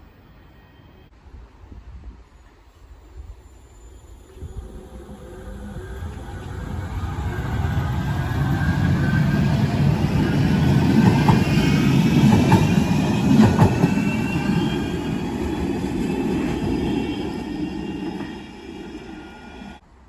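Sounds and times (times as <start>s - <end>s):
tram rumbling past: 2.5s - 19.9s
high whine of motors and wheels: 2.7s - 13.2s.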